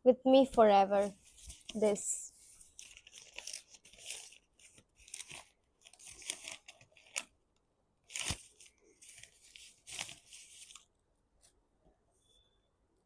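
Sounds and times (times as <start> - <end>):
paper packaging crinkling: 1.1 - 7.4, 8.0 - 10.9.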